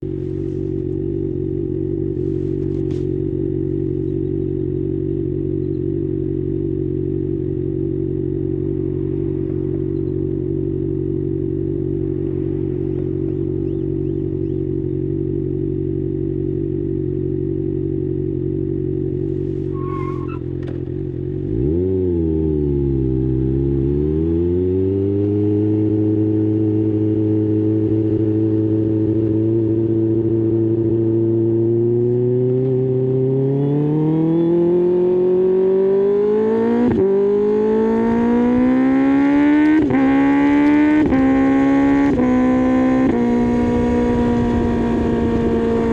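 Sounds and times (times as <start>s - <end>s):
motorcycle engine idling: 0.0s - 23.8s.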